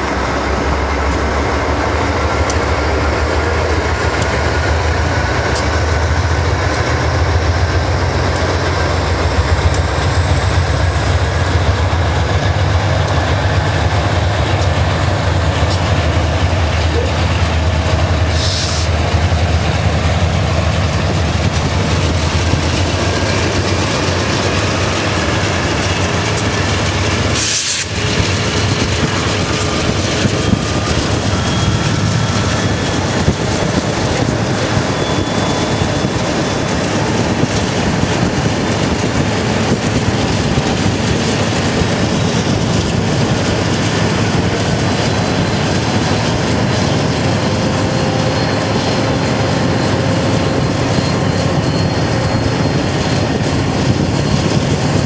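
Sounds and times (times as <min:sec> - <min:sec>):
freight train rumbling: 0:00.0 - 0:55.0.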